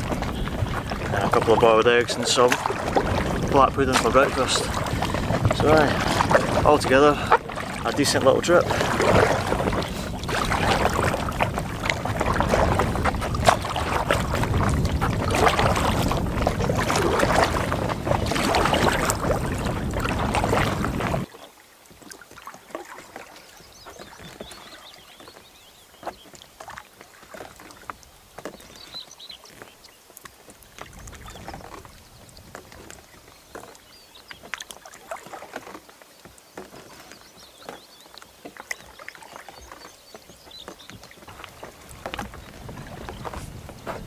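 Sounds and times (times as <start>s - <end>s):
wind noise on microphone: 0.0s - 21.3s, 30.6s - 34.0s, 40.5s - 44.0s
paddle strokes splashing water: 0.0s - 44.0s
water drips and light splashes: 0.0s - 44.0s.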